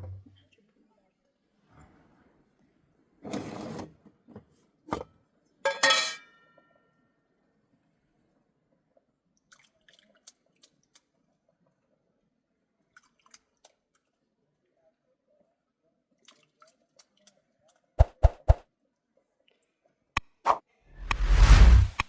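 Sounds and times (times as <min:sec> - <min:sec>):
dish clinking: 0:05.7 - 0:06.2.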